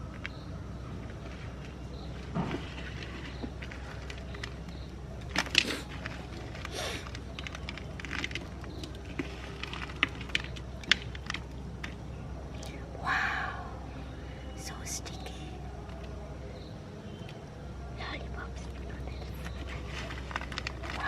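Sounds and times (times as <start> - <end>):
low steady hum: 0.0 - 21.0
candy cracking in a meat grinder: 5.3 - 11.6.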